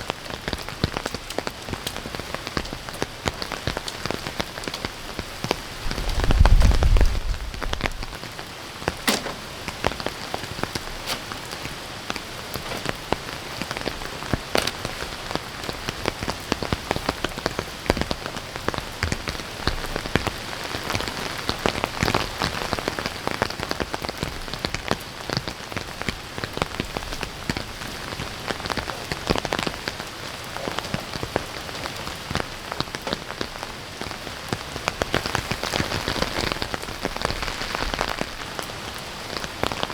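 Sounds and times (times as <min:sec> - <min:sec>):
heavy rain pattering: 0:00.0 - 0:39.9
low rumble: 0:05.8 - 0:08.1.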